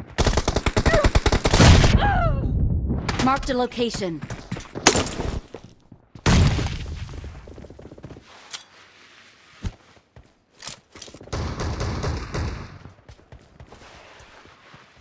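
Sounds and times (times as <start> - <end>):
rapid gunfire burst: 0.2 - 1.9.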